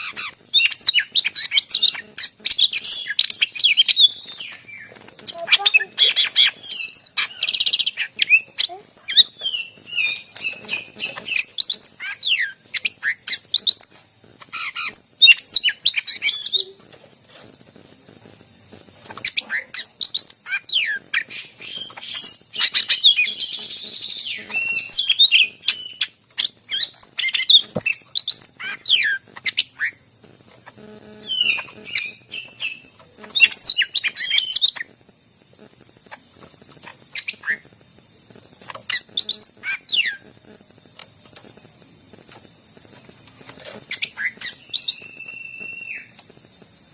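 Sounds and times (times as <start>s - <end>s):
leafbird singing chirps and whistles: 0.0s - 16.8s, 19.0s - 30.0s, 30.6s - 34.9s, 38.6s - 40.3s, 43.6s - 46.2s.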